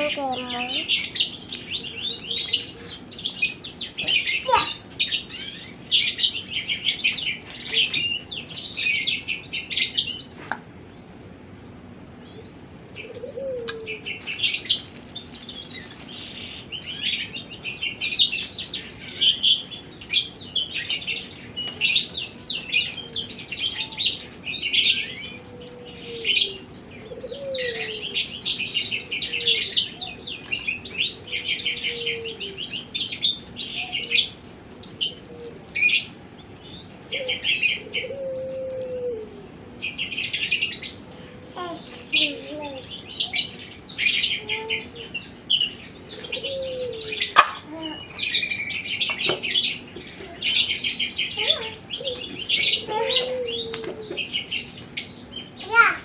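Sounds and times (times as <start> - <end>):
birds chirping rapidly: 0.0 - 56.0
faint low dove coos: 12.3 - 14.3, 22.8 - 36.0, 37.0 - 42.8, 44.4 - 45.4, 46.1 - 48.6, 51.4 - 54.6.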